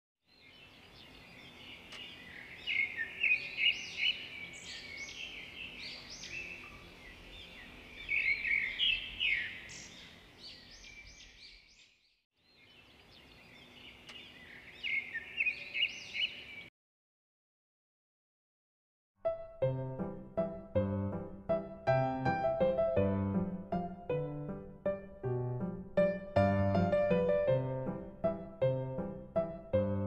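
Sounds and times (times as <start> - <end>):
birds chirping and twittering: 0.3 - 16.7.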